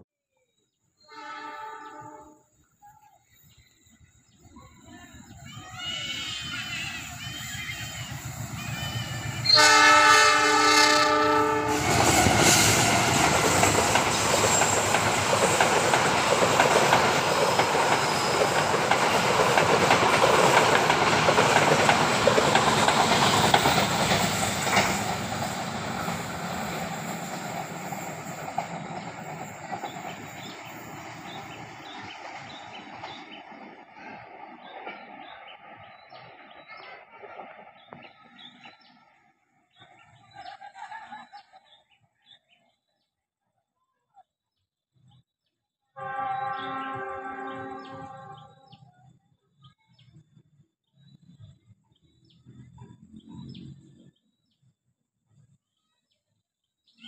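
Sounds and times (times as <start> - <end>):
train horn chord: 1.0 - 2.6, 8.6 - 12.1, 45.9 - 48.8
train wheels on rails: 2.8 - 41.8.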